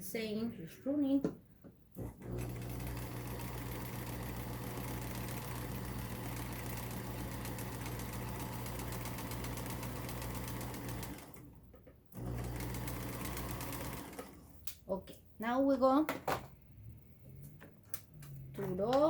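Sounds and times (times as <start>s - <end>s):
sewing machine running: 2.0s - 11.5s, 12.2s - 14.5s.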